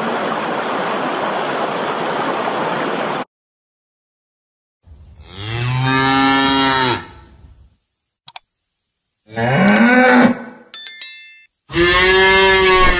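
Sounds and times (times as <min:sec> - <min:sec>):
cow mooing: 0:05.2 - 0:07.3, 0:09.3 - 0:10.6, 0:11.7 - 0:12.9
bright ding: 0:10.7 - 0:11.5.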